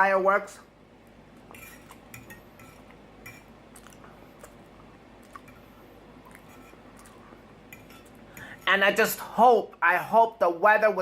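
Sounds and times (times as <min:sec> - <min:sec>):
person chewing food: 0:01.1 - 0:02.1, 0:02.7 - 0:08.6
wet mouth clicks: 0:03.7 - 0:05.6.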